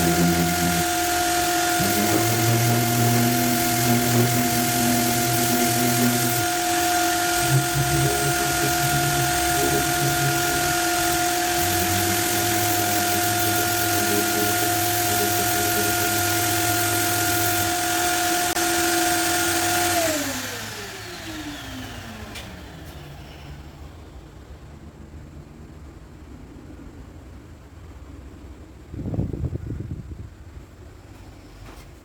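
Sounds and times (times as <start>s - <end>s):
orbital sander whining: 0.0s - 23.4s.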